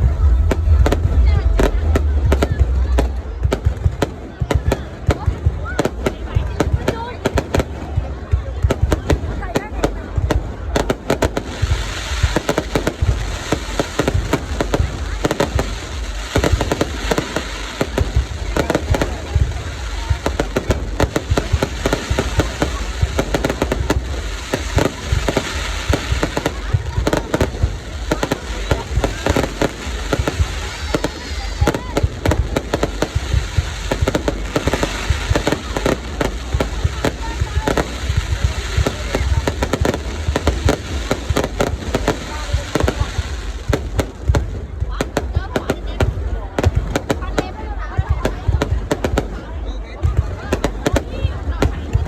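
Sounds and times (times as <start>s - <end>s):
low rumble: 0.0s - 4.1s
steady low rumble: 0.0s - 47.1s
fireworks bangs and pops: 0.0s - 52.0s.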